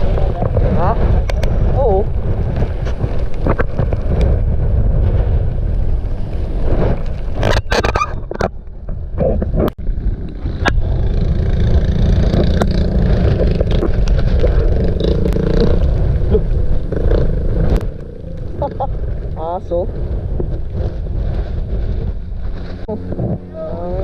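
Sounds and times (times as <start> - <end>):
road rumble: 0.0 - 24.0
wind rushing over microphone: 0.0 - 24.0
motorcycle engine: 9.8 - 19.3.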